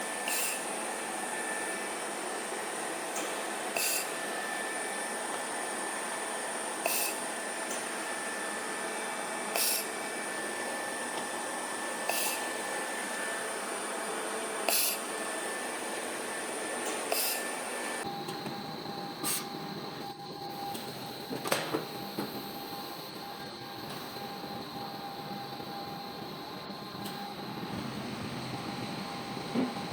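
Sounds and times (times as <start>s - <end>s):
machine hum and high whine: 0.0s - 29.9s
spot welder hissing bursts: 6.8s - 7.4s, 9.5s - 10.5s, 12.0s - 12.9s, 14.6s - 15.9s, 16.8s - 18.0s.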